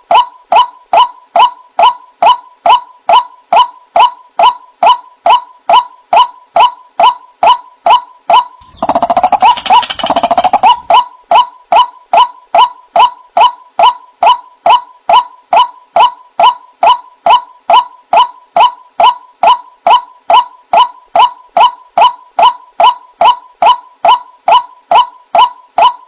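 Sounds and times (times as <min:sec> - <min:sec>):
waterhen calling: 0:08.6 - 0:11.0.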